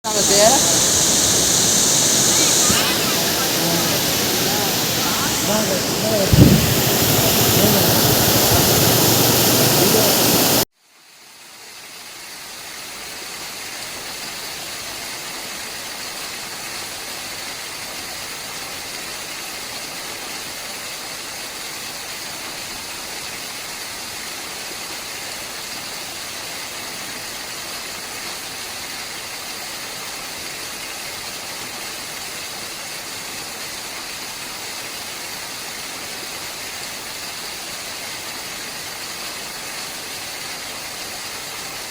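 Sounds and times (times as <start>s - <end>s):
waterfall rushing: 0.0s - 10.7s.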